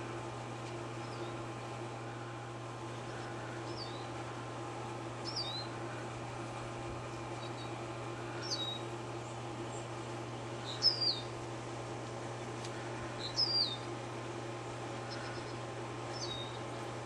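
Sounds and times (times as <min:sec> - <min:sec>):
steady low hum: 0:00.0 - 0:17.0
small bird chirping: 0:01.0 - 0:01.4, 0:03.1 - 0:04.2, 0:05.2 - 0:05.7, 0:07.4 - 0:07.8, 0:08.4 - 0:09.9, 0:10.6 - 0:11.4, 0:13.2 - 0:13.9, 0:15.1 - 0:16.7.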